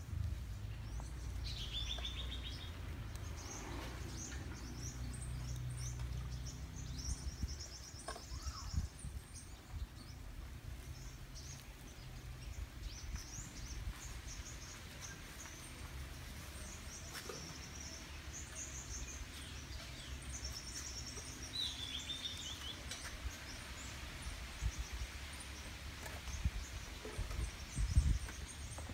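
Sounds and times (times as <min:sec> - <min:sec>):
low outdoor background rumble: 0:00.0 - 0:28.9
small birds chirping: 0:00.0 - 0:28.9.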